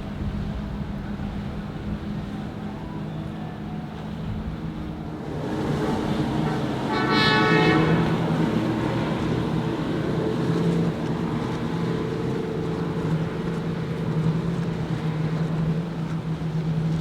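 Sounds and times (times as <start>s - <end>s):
motorboat engines running: 0.0s - 17.0s
short horn blast: 5.6s - 9.6s.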